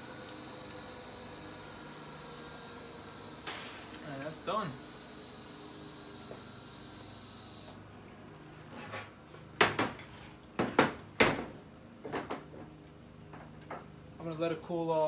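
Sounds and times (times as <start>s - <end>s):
hiss with high whine: 0.0s - 7.8s.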